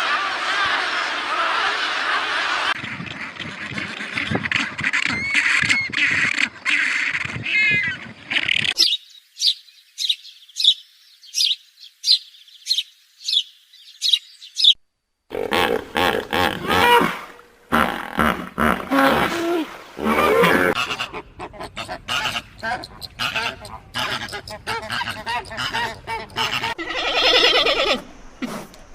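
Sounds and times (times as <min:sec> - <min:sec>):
birds calling and chirping: 0:00.6 - 0:14.8, 0:20.4 - 0:28.9.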